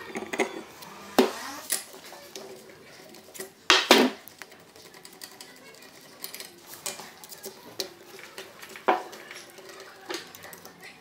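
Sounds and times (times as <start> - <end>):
metal tools clanking: 0.0 - 3.5.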